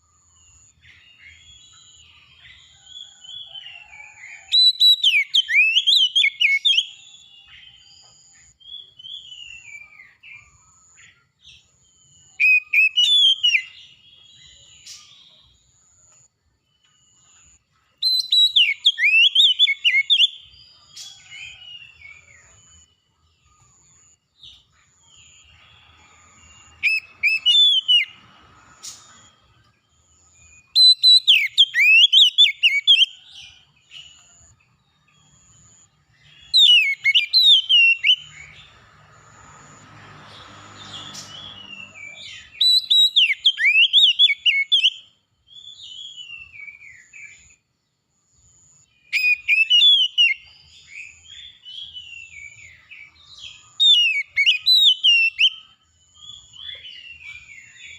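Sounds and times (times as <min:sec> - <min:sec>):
bird singing whistled phrases: 0:03.9 - 0:07.8, 0:12.3 - 0:15.4, 0:18.0 - 0:20.5, 0:26.5 - 0:28.2, 0:30.4 - 0:33.2, 0:36.3 - 0:38.6, 0:40.9 - 0:47.5, 0:49.1 - 0:52.9, 0:53.5 - 0:55.7.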